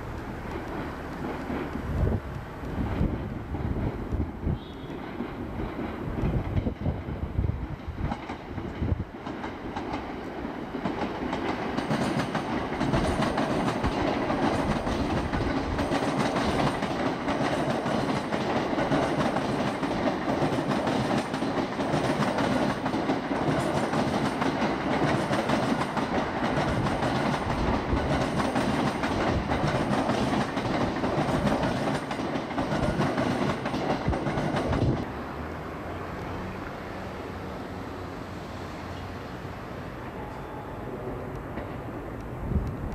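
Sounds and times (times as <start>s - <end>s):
electric train running past: 0.0s - 42.9s
wheels clattering over rail joints: 7.8s - 35.1s.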